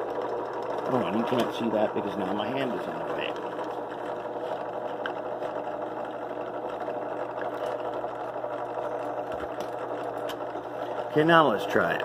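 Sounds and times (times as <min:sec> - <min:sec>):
drill press running: 0:00.0 - 0:12.0.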